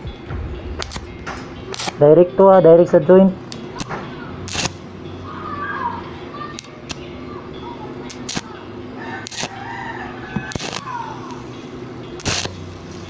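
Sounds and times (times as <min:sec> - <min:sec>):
short sharp crackles: 0:00.0 - 0:02.2
steady low hum: 0:00.0 - 0:09.0
chickens calling: 0:08.8 - 0:11.9
rooster crowing: 0:09.0 - 0:11.5.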